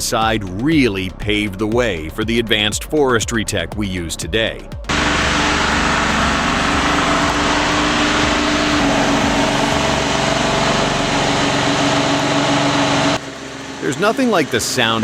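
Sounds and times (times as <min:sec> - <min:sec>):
truck diesel engine running: 0:04.9 - 0:15.0.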